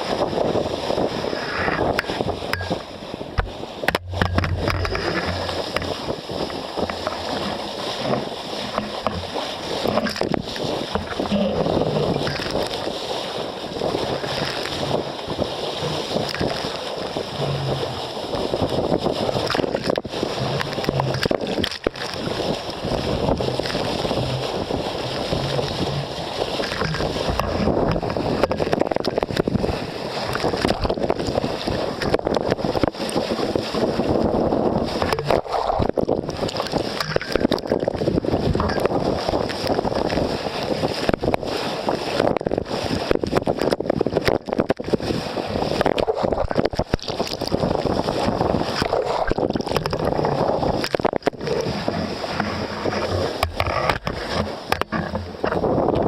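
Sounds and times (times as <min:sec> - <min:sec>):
water sloshing along hull: 0:00.0 - 0:56.0.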